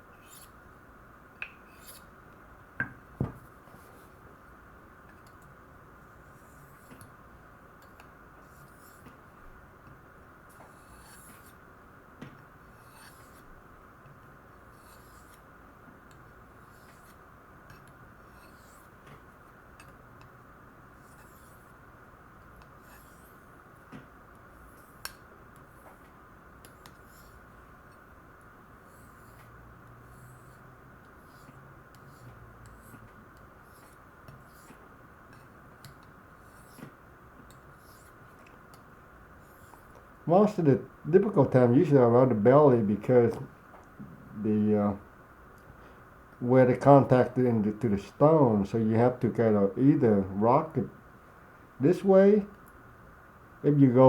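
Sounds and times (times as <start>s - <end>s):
faint steady hum: 0.0s - 54.0s
blade scraping on ceramic stone: 1.6s - 2.1s, 10.6s - 11.6s, 12.7s - 13.5s, 14.7s - 15.4s, 16.6s - 19.0s, 21.0s - 21.8s, 22.6s - 23.5s, 26.6s - 27.4s, 28.8s - 29.5s, 30.1s - 36.9s, 37.5s - 38.4s, 39.4s - 40.0s.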